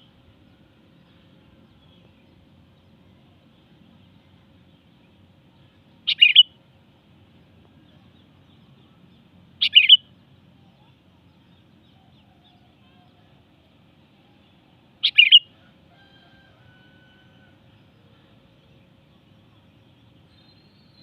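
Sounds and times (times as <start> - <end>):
bird chirping calls: 3.6 - 6.6, 7.8 - 13.4, 14.2 - 15.6.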